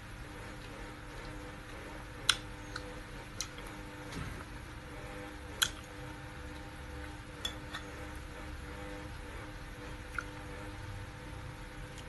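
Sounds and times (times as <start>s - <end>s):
faint steady hum: 0.0s - 12.0s
person chewing wetly: 0.5s - 3.8s, 5.5s - 6.7s, 7.4s - 8.5s, 9.9s - 10.6s.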